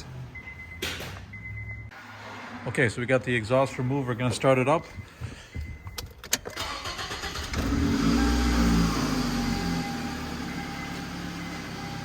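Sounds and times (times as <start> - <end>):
starter motor cranking: 6.6 - 7.9.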